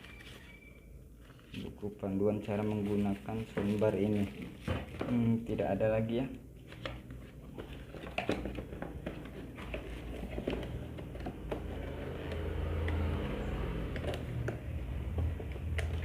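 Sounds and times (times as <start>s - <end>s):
packaging rustling: 2.5s - 5.4s.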